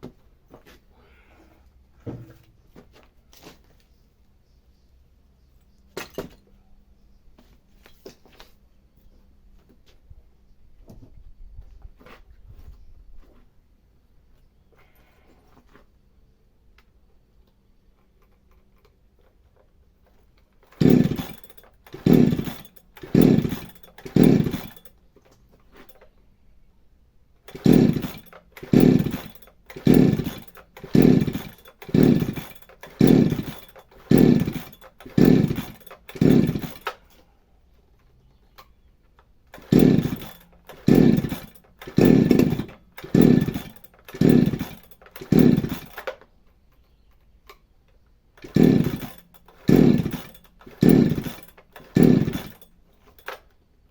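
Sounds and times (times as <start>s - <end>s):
chainsaw bursts: 20.6s - 25.0s, 27.4s - 37.2s, 39.4s - 46.2s, 48.3s - 53.5s.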